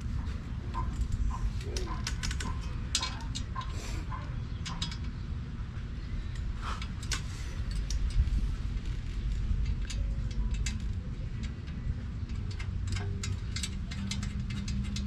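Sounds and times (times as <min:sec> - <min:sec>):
low shop hum: 0:00.0 - 0:15.0
metallic clicks and clinks: 0:09.3 - 0:15.0.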